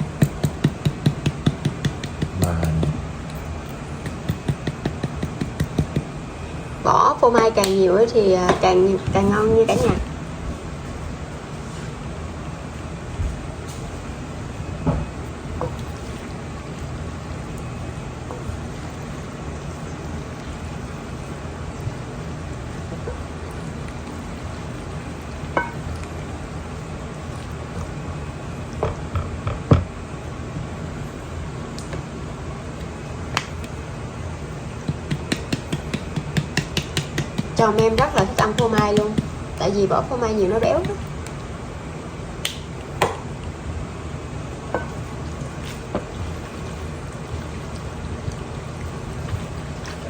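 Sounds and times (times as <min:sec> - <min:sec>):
utensil striking a pot: 0:00.2 - 0:03.0, 0:04.0 - 0:06.1, 0:25.6 - 0:25.8, 0:34.9 - 0:39.4
sauce simmering in a pot: 0:10.6 - 0:36.8, 0:40.9 - 0:50.0
pasta sauce simmering: 0:40.9 - 0:50.0.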